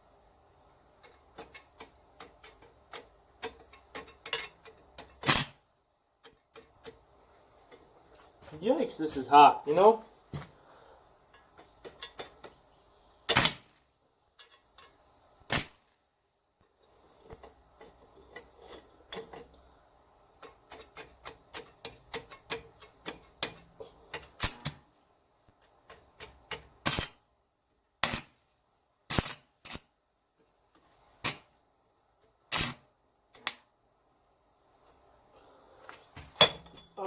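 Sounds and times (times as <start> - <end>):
arc welder crackling: 11.5 - 13.9, 15.4 - 16.0, 24.3 - 24.9, 28.0 - 28.5, 29.1 - 29.9.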